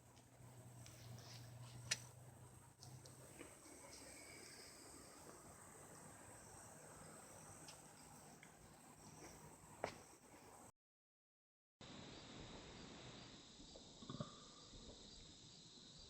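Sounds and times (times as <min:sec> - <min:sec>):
thin steady high tone: 0:03.1 - 0:10.2
faint hiss: 0:11.8 - 0:16.0.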